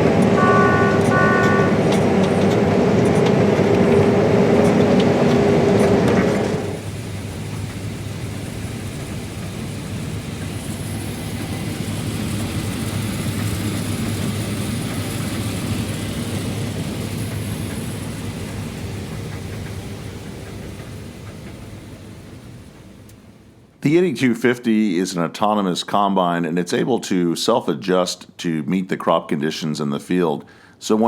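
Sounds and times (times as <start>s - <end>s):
combine harvester hum: 0.0s - 23.8s.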